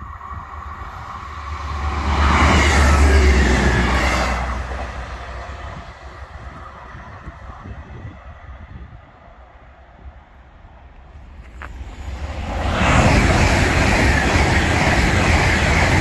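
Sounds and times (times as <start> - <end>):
diesel train passing: 0.0 - 16.0.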